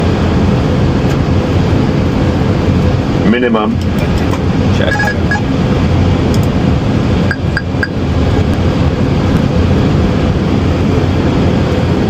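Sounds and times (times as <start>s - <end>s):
cockpit airflow and engine noise: 0.0s - 12.0s
quick high beeps: 4.8s - 5.5s, 7.3s - 7.9s.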